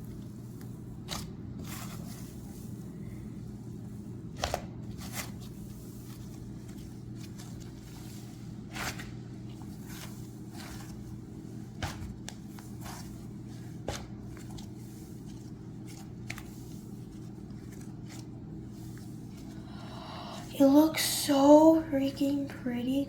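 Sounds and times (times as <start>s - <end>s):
steady low hum: 0.0s - 23.0s
slime crackling and squishing: 0.2s - 19.7s.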